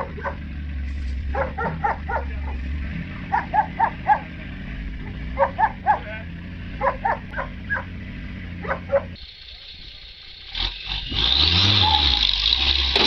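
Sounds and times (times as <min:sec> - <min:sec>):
dog barking: 0:00.0 - 0:00.5, 0:01.2 - 0:04.4, 0:05.0 - 0:07.9, 0:08.6 - 0:09.2
low steady rumble: 0:00.0 - 0:10.5.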